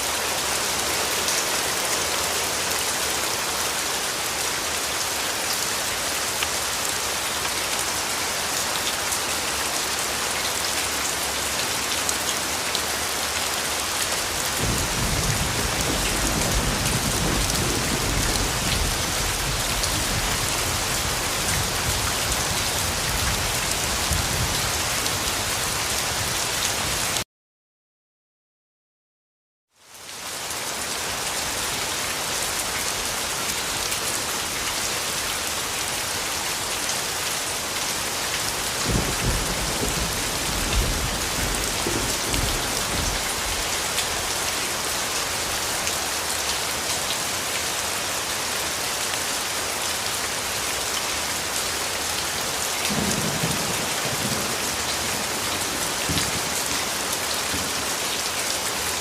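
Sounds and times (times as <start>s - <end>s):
heavy rain: 0.0s - 27.2s, 29.7s - 59.0s
low rumbles of thunder: 14.6s - 21.0s, 38.8s - 43.6s.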